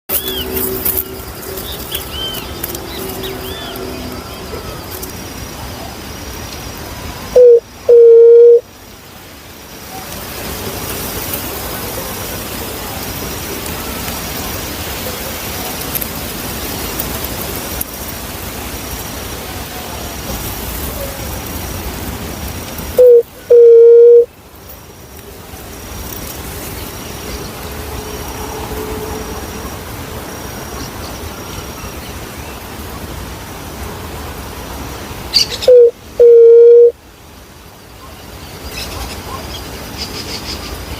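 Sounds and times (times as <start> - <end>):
background hiss: 0.1 - 40.9
dove cooing: 7.4 - 8.6, 23.0 - 24.3, 35.7 - 36.9.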